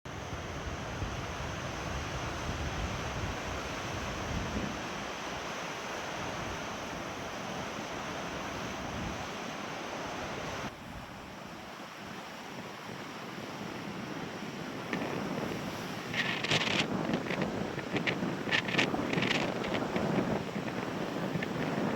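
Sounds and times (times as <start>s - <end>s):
waves washing on shore: 0.1s - 21.9s
wind buffeting microphone: 0.2s - 5.4s, 10.2s - 21.9s.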